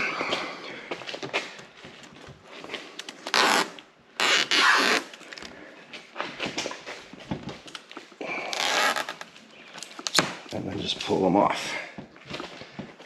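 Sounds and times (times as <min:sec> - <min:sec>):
film peeling off tape: 0:02.9 - 0:05.5.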